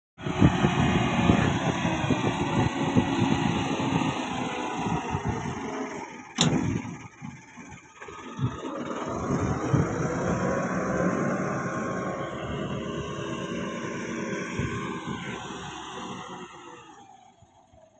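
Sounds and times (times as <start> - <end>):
tractor diesel engine running: 0.2 - 17.9
sharp click: 6.4 - 6.8.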